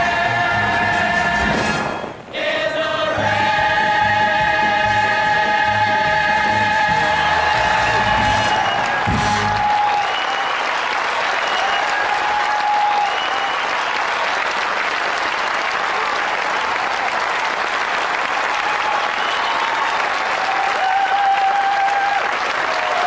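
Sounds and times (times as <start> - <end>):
audience applauding: 6.5 - 23.0.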